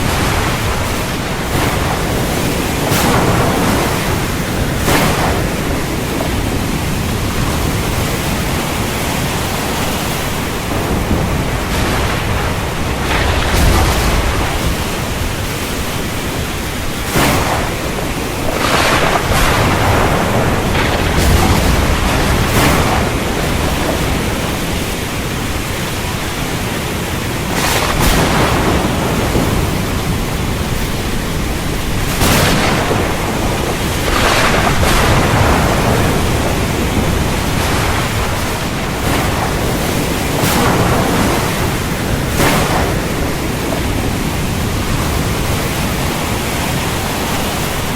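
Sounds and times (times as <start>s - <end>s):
heavy rain pouring: 0.0s - 47.9s
thunder rumbling: 0.0s - 47.9s.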